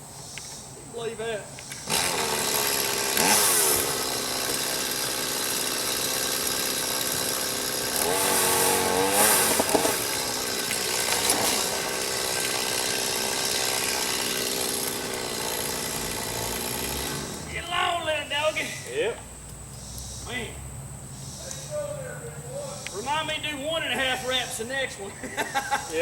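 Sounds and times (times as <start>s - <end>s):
chainsaw engine revving: 1.8s - 18.8s.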